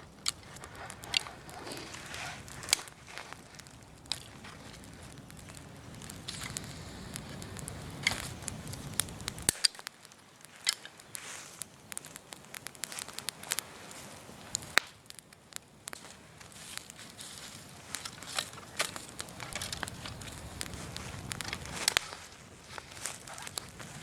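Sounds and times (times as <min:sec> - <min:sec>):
bonfire crackling and popping: 0:00.0 - 0:24.0
low background rumble: 0:18.6 - 0:22.9.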